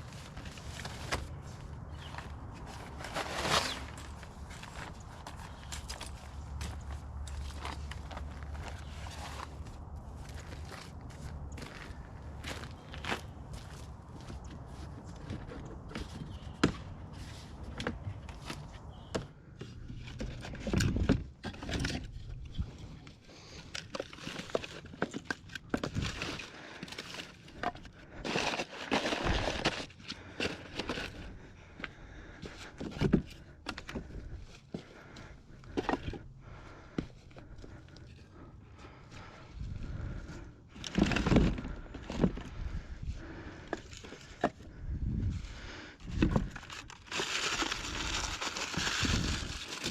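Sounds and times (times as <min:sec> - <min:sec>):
rustling: 0:00.0 - 0:11.2, 0:46.2 - 0:49.9
footsteps on forest floor: 0:00.3 - 0:16.5.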